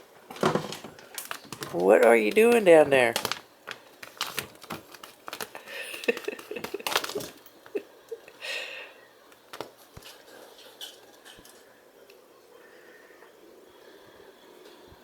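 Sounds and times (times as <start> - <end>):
cats playing clicks and taps: 0.3 - 7.8, 9.3 - 11.6.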